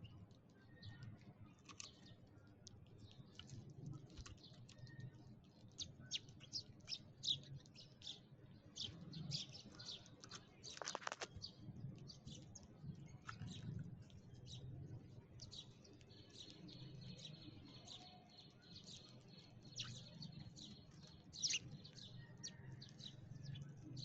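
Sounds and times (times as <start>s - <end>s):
sparrows chirping: 0.0s - 24.0s.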